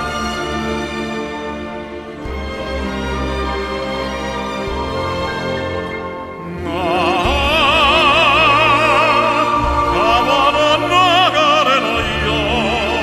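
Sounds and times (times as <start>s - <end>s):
orchestral accompaniment: 0.0s - 13.0s
operatic tenor singing: 4.8s - 13.0s.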